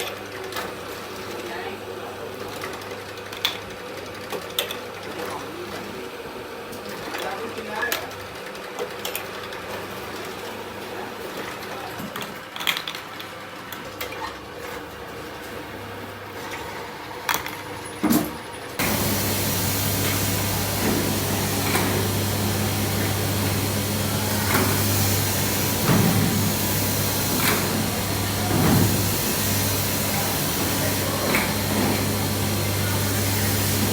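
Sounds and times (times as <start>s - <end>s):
machinery clicks and knocks: 18.8s - 33.9s
steady machine hum: 18.8s - 33.9s.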